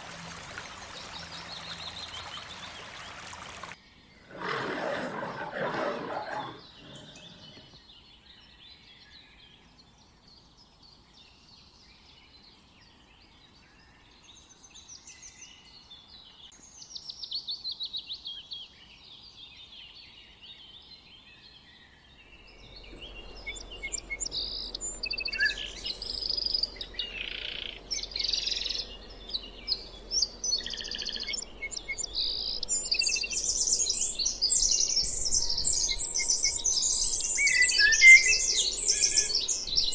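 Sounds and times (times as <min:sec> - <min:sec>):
birds chirping and calling: 0:00.5 - 0:07.8, 0:22.5 - 0:39.9
low steady hum: 0:22.4 - 0:30.5.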